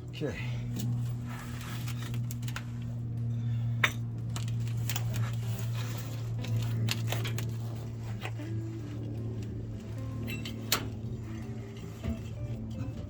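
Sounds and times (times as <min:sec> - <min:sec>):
steady low hum: 0:00.0 - 0:13.0
metal tools clinking: 0:10.0 - 0:11.0.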